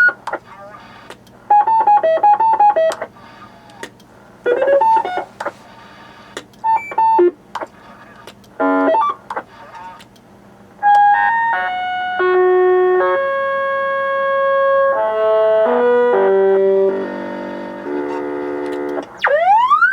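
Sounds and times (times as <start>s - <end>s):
electronic roger beeps: 0.0s - 3.8s, 4.5s - 7.4s, 8.6s - 10.0s
clicks: 2.9s - 4.1s, 6.3s - 8.6s, 9.3s - 10.3s.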